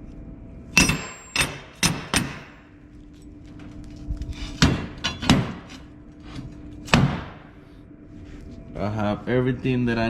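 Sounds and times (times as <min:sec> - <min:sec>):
faint steady hum: 0:00.0 - 0:10.0
steel pieces knocking: 0:00.8 - 0:02.6.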